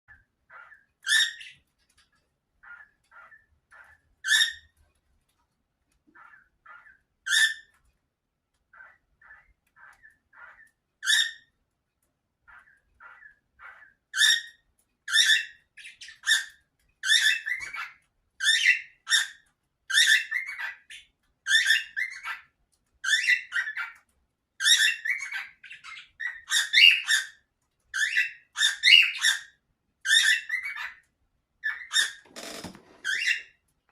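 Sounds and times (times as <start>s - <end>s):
cockatiel chirping: 0.5s - 1.6s, 2.6s - 4.8s, 6.2s - 7.8s, 8.7s - 11.5s, 12.5s - 24.0s, 24.6s - 31.0s.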